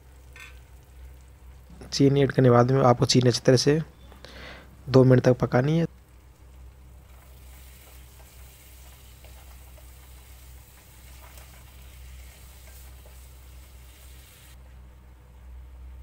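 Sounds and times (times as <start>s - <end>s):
low steady hum: 0.0s - 16.0s
food sizzling in a pan: 6.6s - 14.6s.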